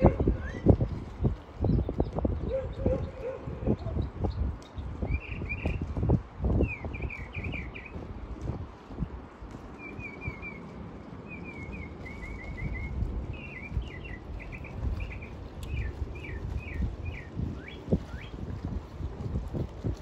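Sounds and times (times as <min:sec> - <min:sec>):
wind rumble on microphone: 0:00.0 - 0:20.0
songbird singing: 0:01.6 - 0:05.9, 0:06.6 - 0:08.0, 0:09.8 - 0:18.4.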